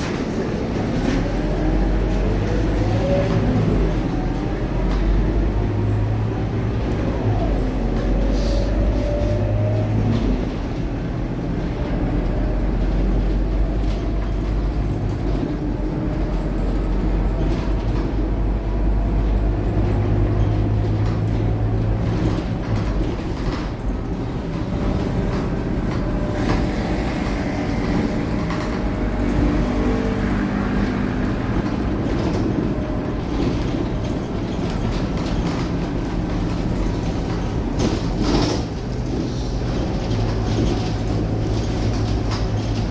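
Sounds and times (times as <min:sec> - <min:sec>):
bus diesel engine running: 0:00.0 - 0:42.9
road noise: 0:00.0 - 0:42.9.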